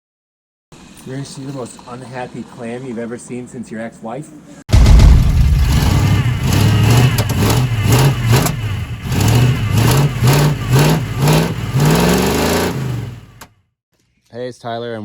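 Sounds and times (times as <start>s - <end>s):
pickup engine revving roughly: 4.8s - 13.4s.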